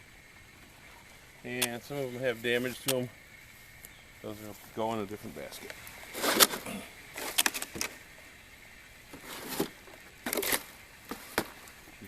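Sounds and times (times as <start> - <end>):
apples rustling and knocking: 3.8 - 8.0, 9.1 - 12.0.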